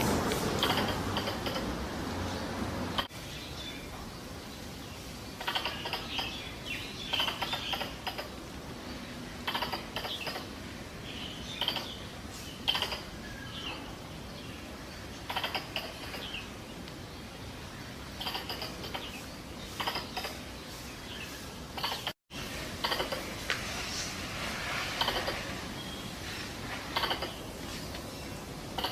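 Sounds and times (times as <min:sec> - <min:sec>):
squirrel call chatter: 0:00.6 - 0:01.9, 0:05.4 - 0:08.6, 0:09.4 - 0:10.6, 0:11.2 - 0:13.8, 0:15.1 - 0:16.6, 0:18.0 - 0:23.4, 0:24.9 - 0:28.0, 0:28.7 - 0:28.9.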